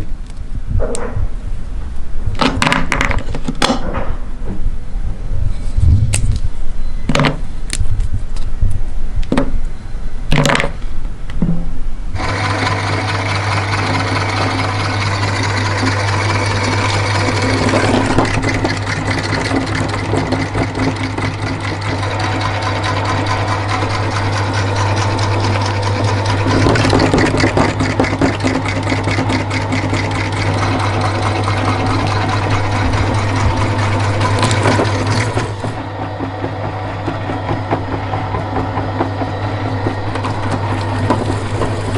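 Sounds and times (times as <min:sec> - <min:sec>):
grinder crunching chocolate: 0:12.2 - 0:41.9
meat grinder motor humming: 0:12.2 - 0:41.9.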